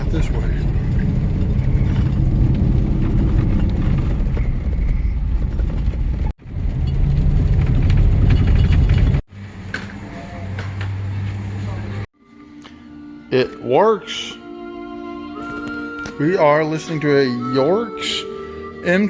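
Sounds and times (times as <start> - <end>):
truck engine and road rumble: 0.0 - 12.1.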